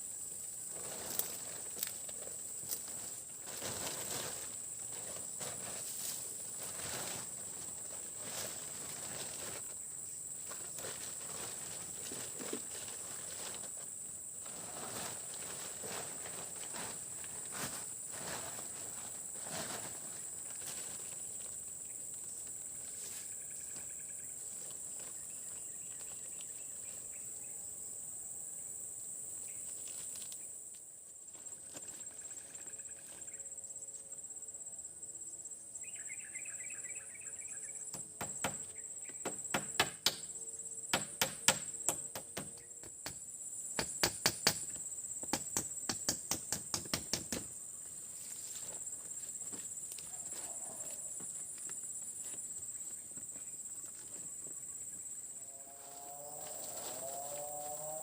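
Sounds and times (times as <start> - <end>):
high-pitched insect chorus: 0.0 - 58.0
sharp knocks in bursts: 37.9 - 40.3, 40.9 - 43.2, 43.8 - 47.5.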